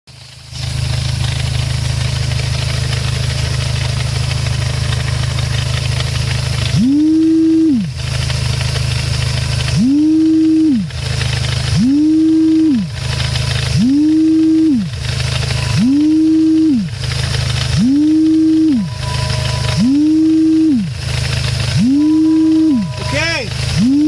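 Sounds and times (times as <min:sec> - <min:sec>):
car engine idling: 0:00.1 - 0:24.0
transmission whine: 0:00.8 - 0:24.0
hissy rattle: 0:08.0 - 0:24.0.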